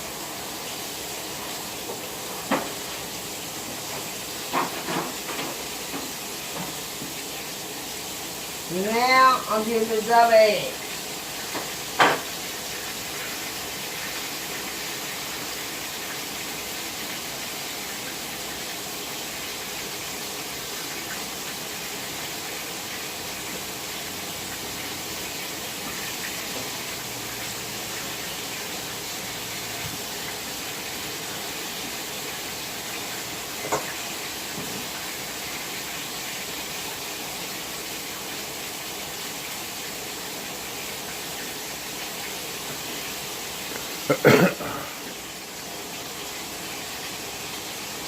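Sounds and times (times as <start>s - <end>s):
tap running: 1.8s - 3.1s.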